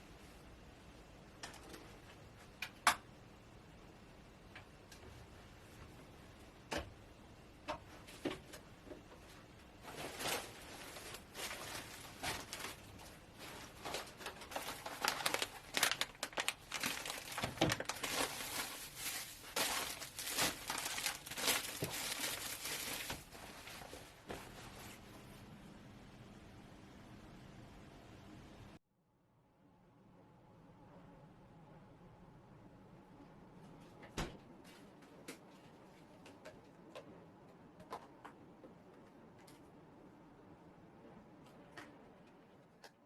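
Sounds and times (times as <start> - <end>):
dense crinkling and rustling: 7.9 - 25.2.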